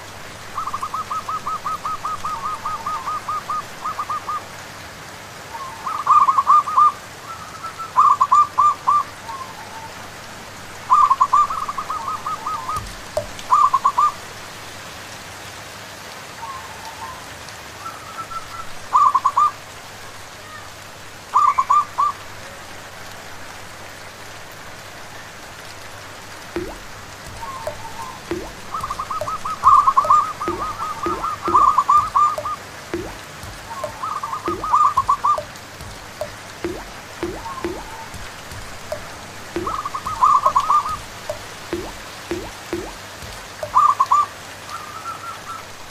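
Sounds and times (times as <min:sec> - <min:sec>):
rain falling: 0:00.0 - 0:45.9
doves cooing: 0:26.6 - 0:35.6.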